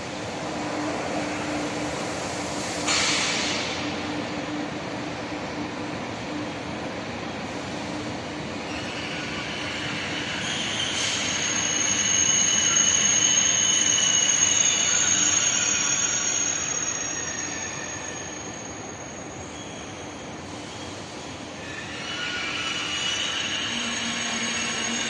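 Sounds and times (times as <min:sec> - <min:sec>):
high-speed train passing: 0:00.0 - 0:25.0
high metallic squeal: 0:08.7 - 0:20.2, 0:21.6 - 0:25.0.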